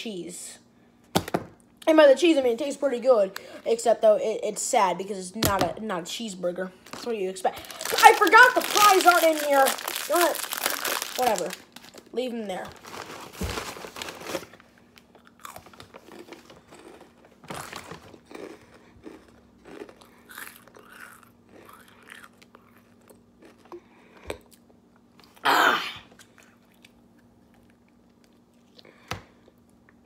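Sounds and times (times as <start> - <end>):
faint steady hum: 0.0 - 30.0
person chewing food: 15.1 - 25.4, 26.1 - 30.0.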